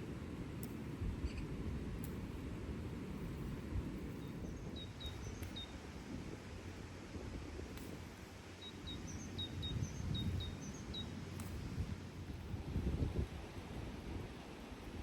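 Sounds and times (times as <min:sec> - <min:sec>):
faint light clicks: 0:00.6 - 0:02.3, 0:05.0 - 0:05.6, 0:11.3 - 0:11.7
small bird chirping: 0:04.2 - 0:05.8, 0:08.6 - 0:11.2.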